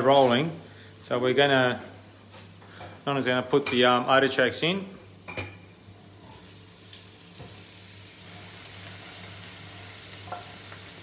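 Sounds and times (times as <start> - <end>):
vegetables sizzling in hot oil: 5.7 - 11.0.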